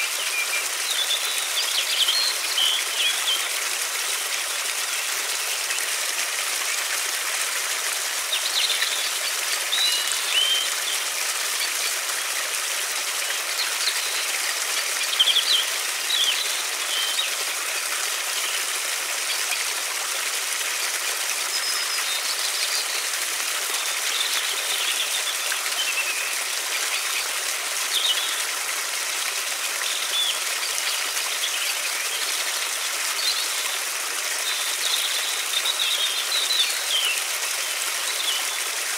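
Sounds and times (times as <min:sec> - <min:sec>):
river water flowing: 0:00.0 - 0:38.9
small birds chirping: 0:08.2 - 0:12.3, 0:13.2 - 0:19.7, 0:23.8 - 0:28.4.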